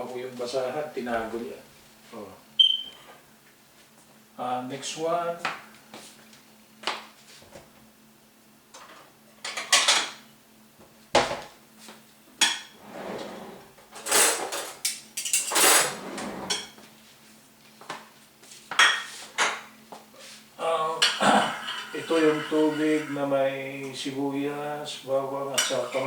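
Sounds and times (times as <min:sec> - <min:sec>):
pots and dishes clattering: 0:08.8 - 0:10.2, 0:14.0 - 0:16.8, 0:21.0 - 0:23.1, 0:25.6 - 0:26.0
utensils scraping and rattling: 0:12.8 - 0:16.7.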